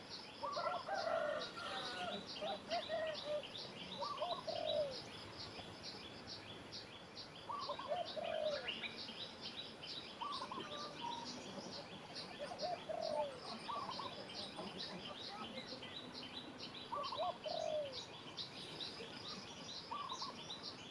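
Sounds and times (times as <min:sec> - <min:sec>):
dove cooing: 0:00.4 - 0:05.1, 0:07.5 - 0:08.8, 0:10.2 - 0:14.6, 0:16.9 - 0:18.1, 0:19.2 - 0:20.4.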